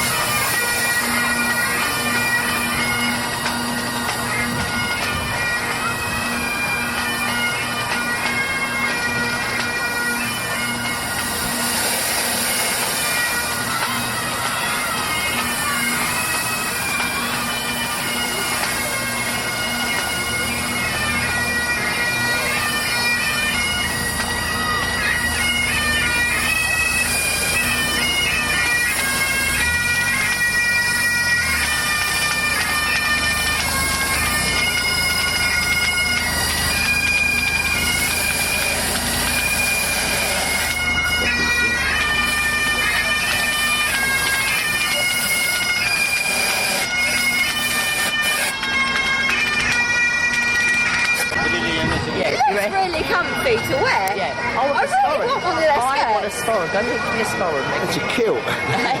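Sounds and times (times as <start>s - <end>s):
bagpipes playing: 0.0s - 59.0s.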